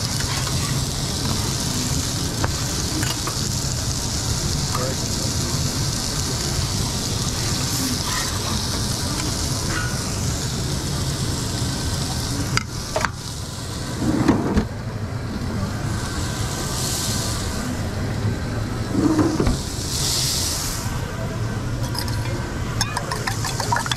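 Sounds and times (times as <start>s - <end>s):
omelette sizzling on a griddle: 0.0s - 23.9s
clatter: 21.8s - 23.9s.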